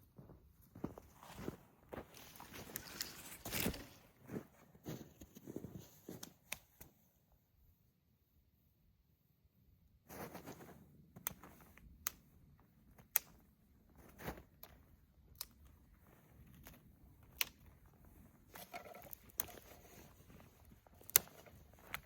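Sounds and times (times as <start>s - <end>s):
soft rustling: 0.7s - 6.9s, 10.1s - 11.8s, 12.5s - 22.0s
twigs snapping: 2.3s - 4.0s, 18.5s - 22.0s.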